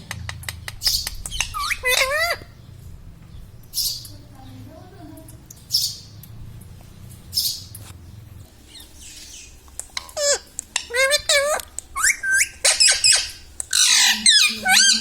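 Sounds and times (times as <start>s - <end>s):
parrot chattering calls: 0.8s - 2.6s, 8.7s - 15.0s
parrot squawk: 1.3s - 2.5s, 10.0s - 15.0s.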